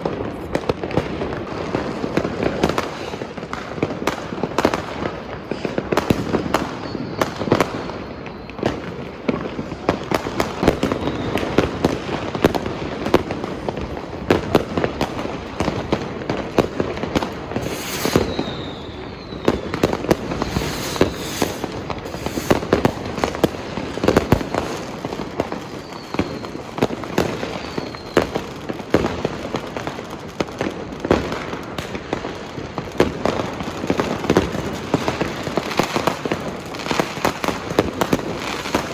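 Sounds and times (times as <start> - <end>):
fireworks bangs and crackling: 0.0 - 38.9
firework whistles: 1.8 - 12.1, 17.2 - 28.7, 37.1 - 38.9.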